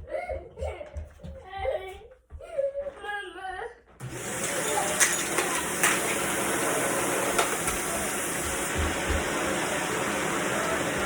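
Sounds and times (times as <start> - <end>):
vacuum cleaner running: 4.0 - 11.0.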